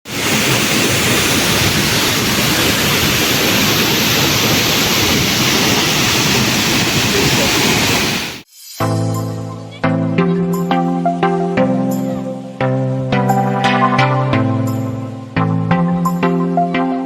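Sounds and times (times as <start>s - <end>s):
waterfall pouring: 0.1s - 8.4s.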